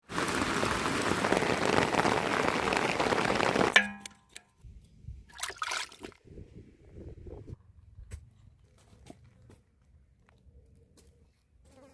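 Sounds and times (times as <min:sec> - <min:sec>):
heavy rain hiss: 0:00.0 - 0:03.8.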